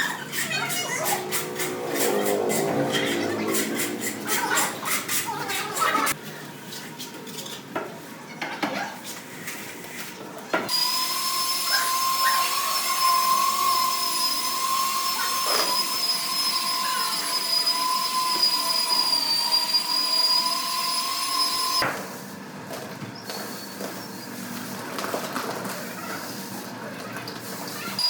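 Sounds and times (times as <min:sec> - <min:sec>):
power tool motor whine: 0:10.7 - 0:21.8.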